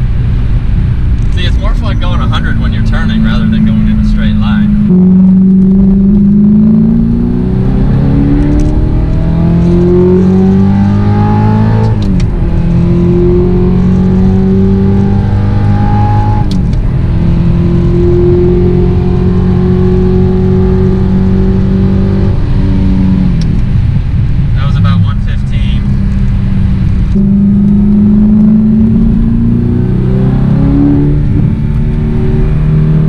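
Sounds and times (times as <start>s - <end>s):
car engine revving under full throttle: 0.0s - 33.0s.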